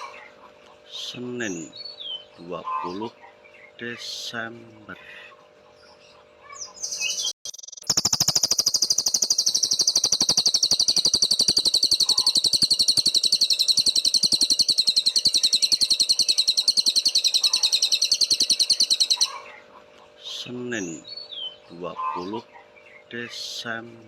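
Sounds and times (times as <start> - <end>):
songbird high-pitched trill: 6.8 - 19.4.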